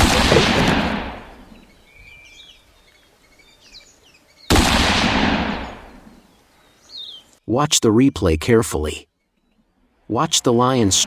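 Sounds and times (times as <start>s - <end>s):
loud gunshot: 0.0s - 1.3s, 4.5s - 6.0s
birds chirping: 0.0s - 4.6s, 5.5s - 11.0s.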